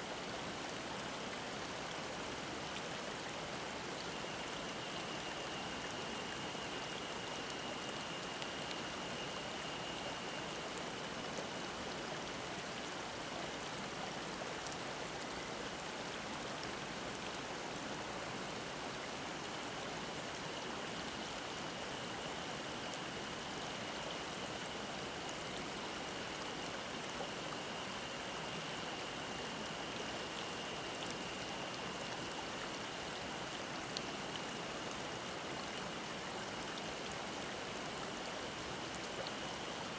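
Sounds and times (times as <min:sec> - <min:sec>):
stream babbling: 0:00.0 - 0:39.9
cicada droning: 0:03.5 - 0:12.4, 0:19.8 - 0:39.7.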